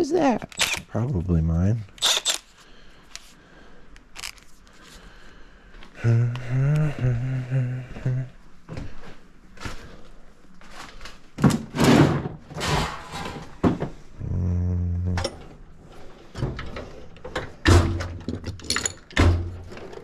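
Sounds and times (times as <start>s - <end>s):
low steady hum: 0.0s - 20.0s
tool drawers sliding: 11.4s - 13.6s
tools rummaged clanking: 11.5s - 13.8s, 15.2s - 20.0s.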